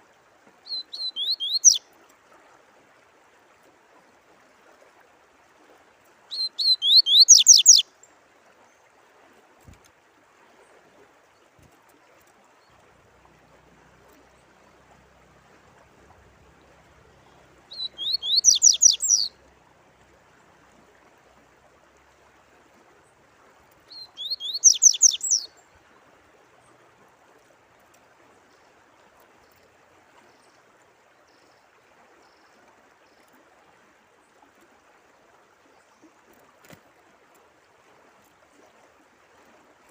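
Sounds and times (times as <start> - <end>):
trickle of running water: 0.0 - 39.9
songbird singing: 0.6 - 1.8, 6.3 - 7.9, 16.4 - 19.6, 23.8 - 25.9.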